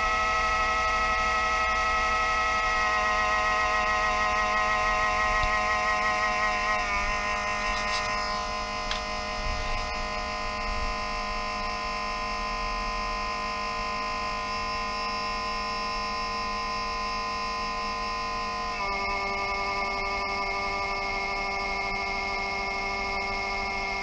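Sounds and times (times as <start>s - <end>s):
cooling fan whining: 0.0s - 15.0s.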